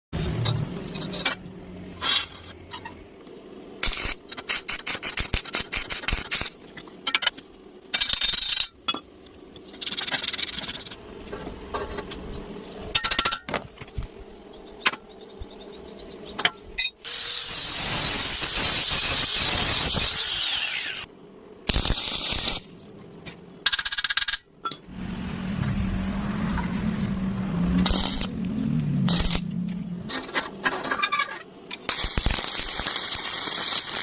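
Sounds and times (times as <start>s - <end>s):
power tool running: 17.1s - 21.1s.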